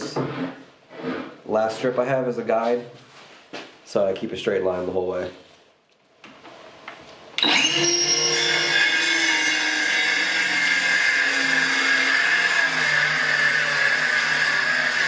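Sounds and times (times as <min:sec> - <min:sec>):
power saw whining: 0:07.4 - 0:15.0.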